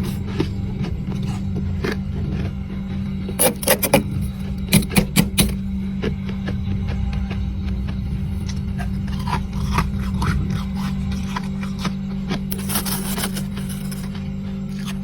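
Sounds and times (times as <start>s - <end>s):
steady low hum: 0.0s - 15.0s
frost crunching between teeth: 3.4s - 15.0s.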